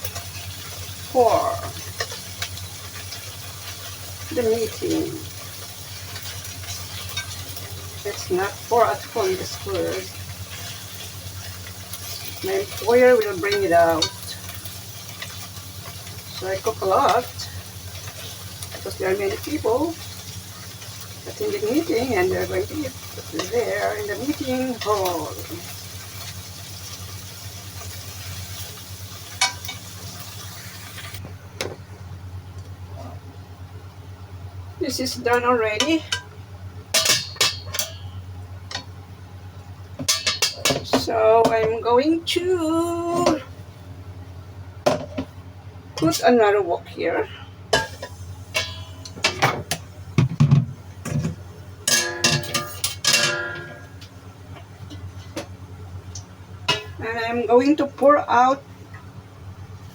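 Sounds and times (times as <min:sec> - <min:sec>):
food sizzling in a wok: 0:00.0 - 0:31.3, 0:33.5 - 0:59.9
metal clank: 0:36.9 - 0:38.8, 0:40.0 - 0:41.1, 0:47.7 - 0:54.0, 0:56.7 - 0:57.0.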